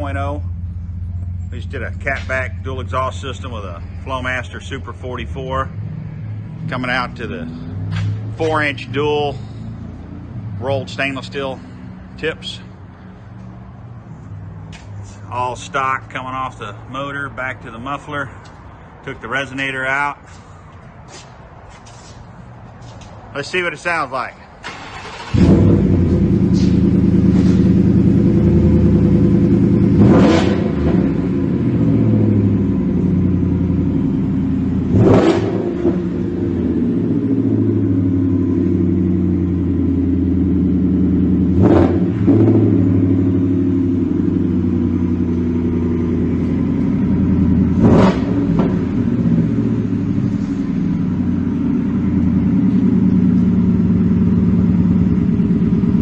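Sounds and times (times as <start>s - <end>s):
engine revving: 0.0s - 12.6s, 24.7s - 56.0s
truck engine idling: 0.0s - 19.6s, 24.2s - 30.0s, 42.7s - 56.0s.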